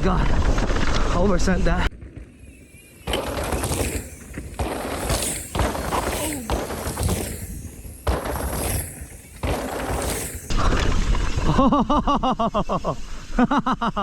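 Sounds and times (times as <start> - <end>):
bike tyres skidding on dirt: 2.0 - 11.4
person laughing: 11.5 - 14.0.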